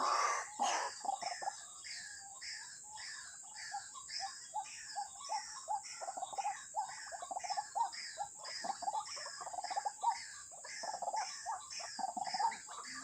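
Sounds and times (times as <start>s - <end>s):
waterhen calling: 0.0s - 0.9s
insects droning: 0.0s - 13.0s.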